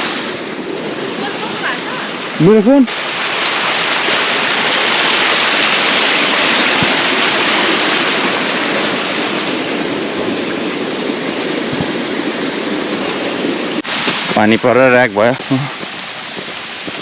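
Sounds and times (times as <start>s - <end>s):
waterfall: 0.0s - 17.0s.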